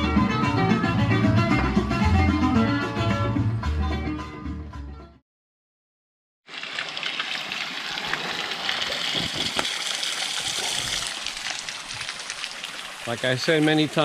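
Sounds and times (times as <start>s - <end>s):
spring water gushing and splashing: 6.5s - 14.0s.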